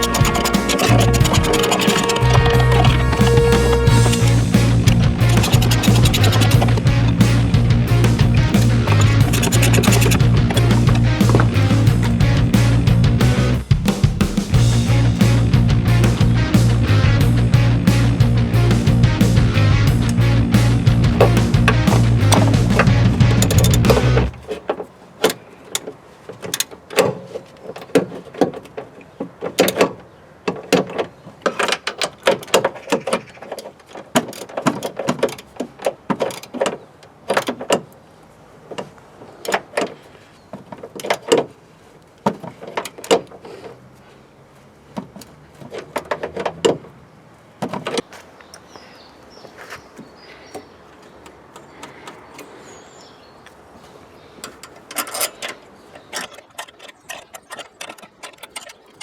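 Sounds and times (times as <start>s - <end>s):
knocks and clanks of car parts: 21.1s - 37.9s, 42.2s - 43.5s, 45.0s - 46.9s, 47.6s - 48.1s.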